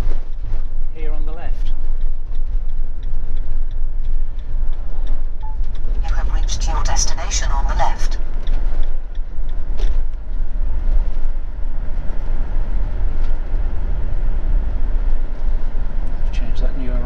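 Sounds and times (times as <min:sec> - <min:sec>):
engine and road rumble: 0:00.0 - 0:17.0.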